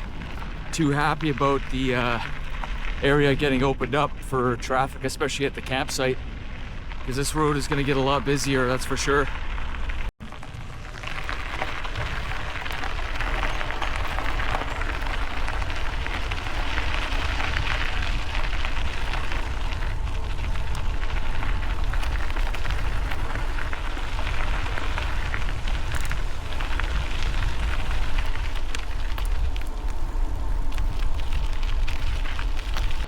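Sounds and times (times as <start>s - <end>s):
bike tyres crunching on gravel: 0.0s - 33.0s
wind buffeting microphone: 0.0s - 33.0s
small stone clicks: 11.1s - 33.0s.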